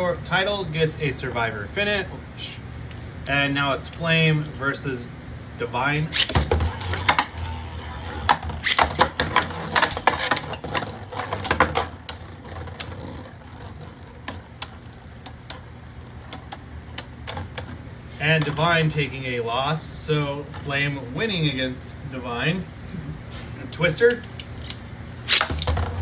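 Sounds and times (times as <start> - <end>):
spinning tops whirring: 6.1 - 19.3, 24.6 - 26.0
spinning tops clacking together: 6.2 - 18.9, 24.2 - 26.0.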